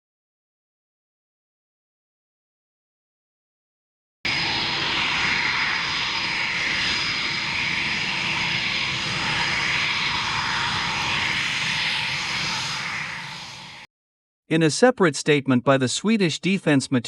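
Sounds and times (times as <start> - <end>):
jet engine roaring: 4.3 - 13.9.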